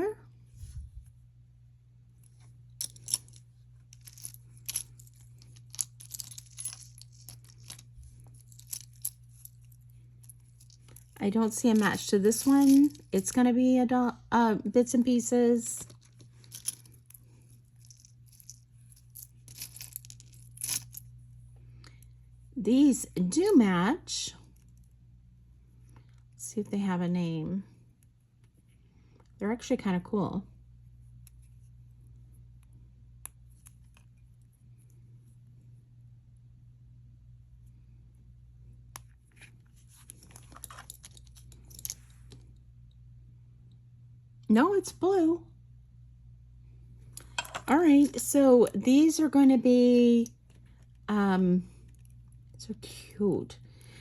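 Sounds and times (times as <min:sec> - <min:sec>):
low steady hum: 0:00.0 - 0:54.0
jewelry clicking and rattling: 0:02.5 - 0:13.4, 0:15.8 - 0:21.2, 0:39.8 - 0:42.9, 0:47.1 - 0:48.8.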